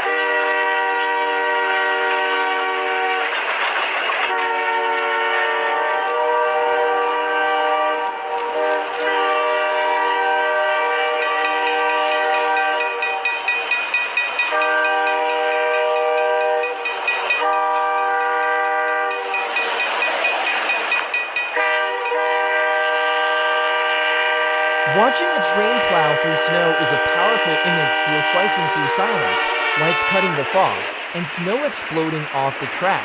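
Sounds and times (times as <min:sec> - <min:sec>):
train air horn: 0:00.0 - 0:03.4, 0:04.3 - 0:13.3, 0:14.5 - 0:19.5, 0:21.5 - 0:30.9
wheels clattering over rail joints: 0:11.2 - 0:22.2.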